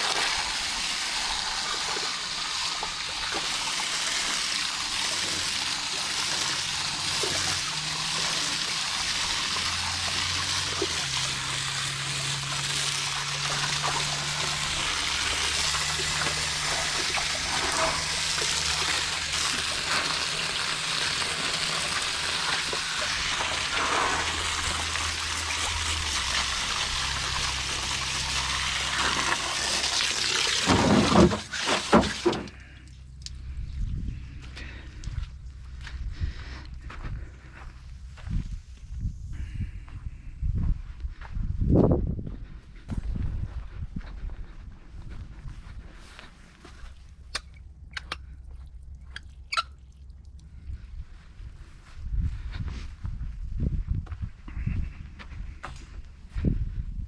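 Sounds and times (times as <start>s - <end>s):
hose spray hissing: 0.0s - 32.6s.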